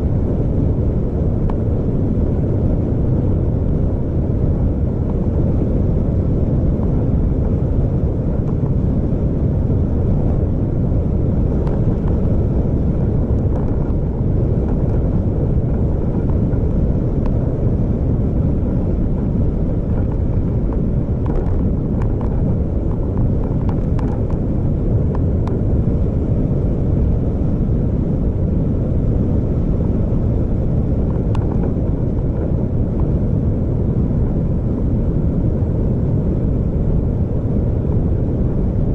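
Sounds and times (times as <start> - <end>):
vehicle road and engine rumble: 0.0 - 38.9
faint clicks and knocks: 13.3 - 14.1, 19.9 - 24.4, 31.1 - 31.8.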